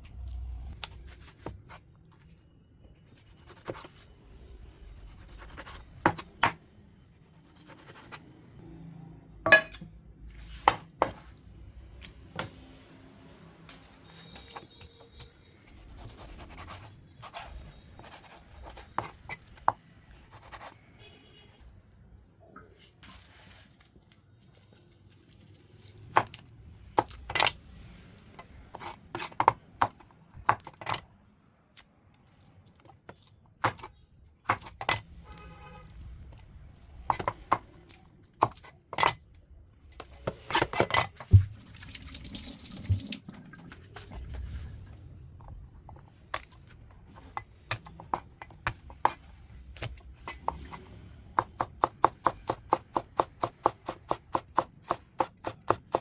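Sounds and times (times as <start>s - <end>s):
bowls and utensils clattering: 9.5s - 10.0s
tap water running: 41.3s - 43.8s.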